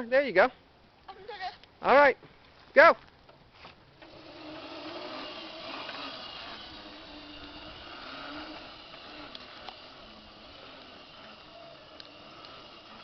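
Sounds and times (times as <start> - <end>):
electric motor humming and whining: 4.0 - 13.0.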